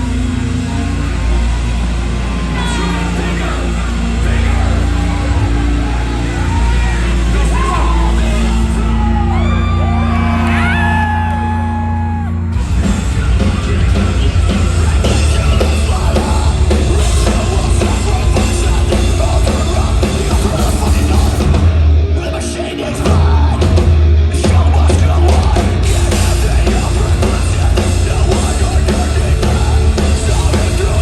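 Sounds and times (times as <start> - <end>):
low drone: 0.0 - 24.3
crowd yelling and whooping: 0.0 - 31.0
rock band playing live: 0.0 - 31.0
pounding drums: 12.5 - 31.0.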